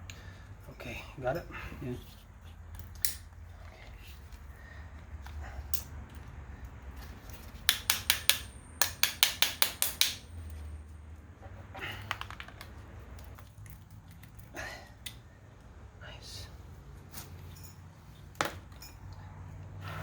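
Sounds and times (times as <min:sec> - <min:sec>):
sharp tapping knocks: 0:07.7 - 0:10.2.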